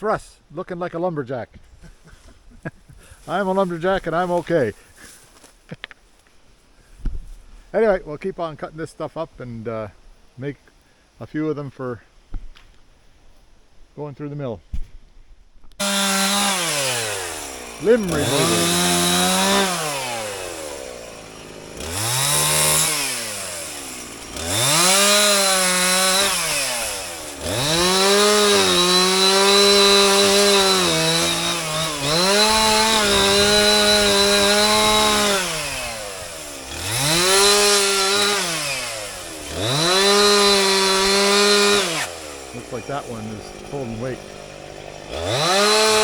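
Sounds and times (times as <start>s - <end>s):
chainsaw revving and cutting: 15.8s - 46.0s.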